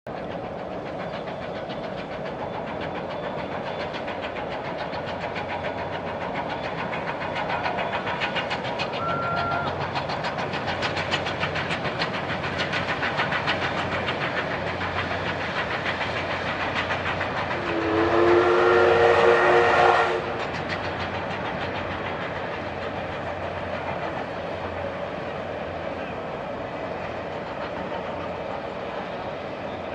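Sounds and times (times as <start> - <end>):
steam locomotive passing: 0.1 - 29.9
steam whistle chord: 17.6 - 20.4.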